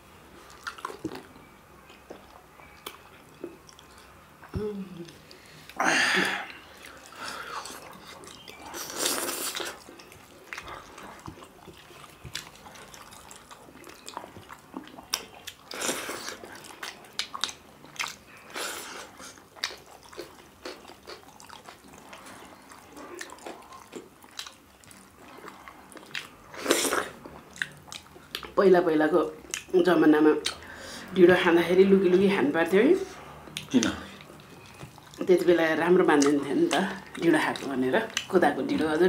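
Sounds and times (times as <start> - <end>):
chewing and biting: 0.5 - 4.5, 6.5 - 28.6, 33.5 - 35.4.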